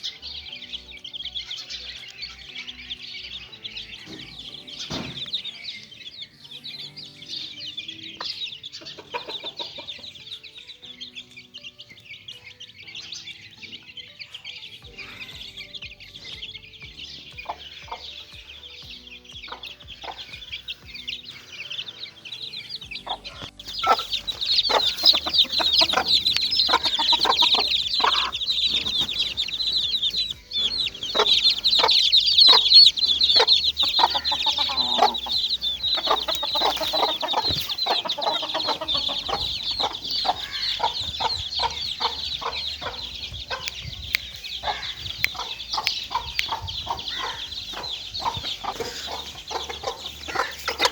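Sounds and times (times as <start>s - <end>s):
chicks peeping: 0.0s - 50.9s
low clucking calls: 8.2s - 10.2s, 15.0s - 18.7s, 19.4s - 21.9s, 22.9s - 50.9s.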